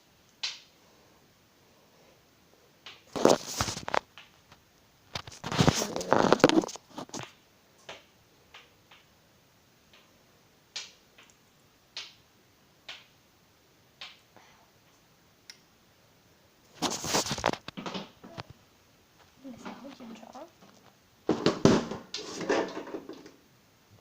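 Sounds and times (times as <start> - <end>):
rustling handling noise: 3.1 - 7.4, 16.7 - 18.6.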